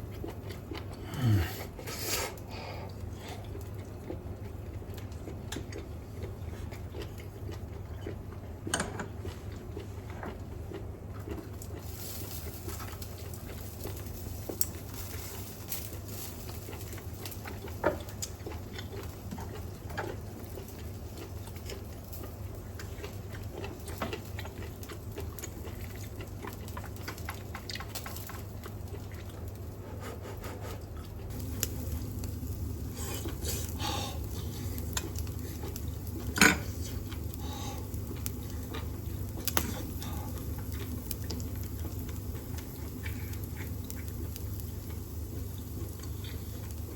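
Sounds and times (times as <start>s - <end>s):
extractor fan humming: 31.3s - 46.9s.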